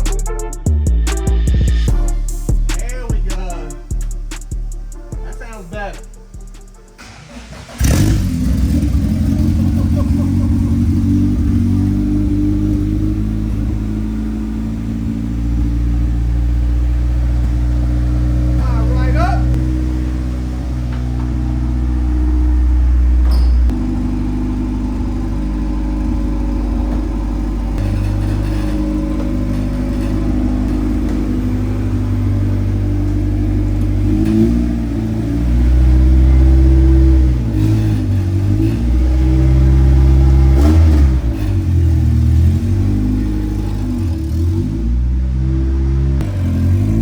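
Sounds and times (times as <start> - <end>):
car engine revving: 0.0 - 47.0.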